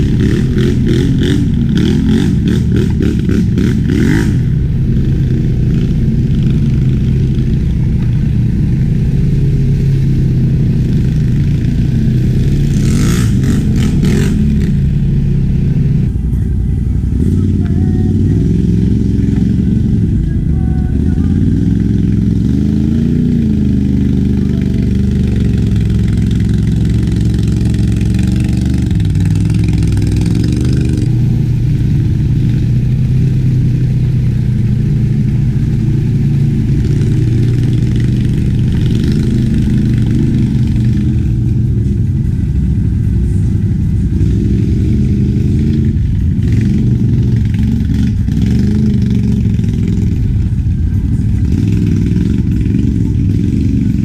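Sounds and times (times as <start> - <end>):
atv engine revving under load: 0.0 - 16.4, 17.0 - 54.0.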